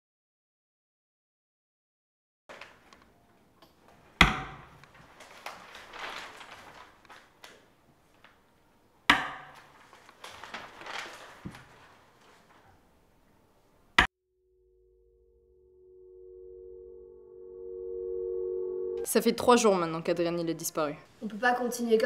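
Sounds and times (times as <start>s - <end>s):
book pages rustling: 2.5s - 3.0s, 4.9s - 8.4s, 9.6s - 12.8s.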